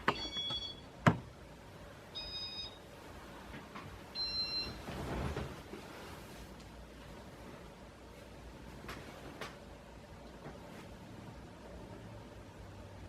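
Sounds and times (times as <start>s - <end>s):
short electronic beeps: 2.2s - 2.8s, 4.2s - 4.8s.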